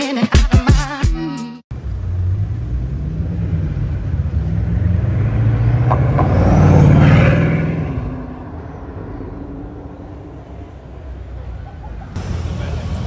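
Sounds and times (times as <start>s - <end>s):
car engine running at low revs: 1.7s - 13.0s.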